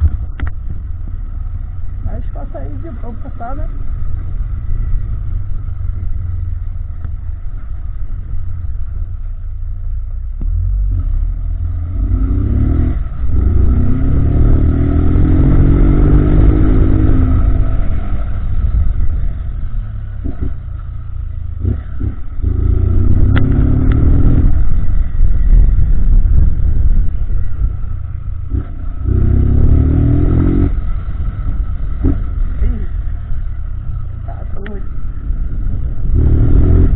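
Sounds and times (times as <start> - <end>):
low wind rumble: 0.0 - 36.9
motorcycle engine revving: 10.3 - 36.9.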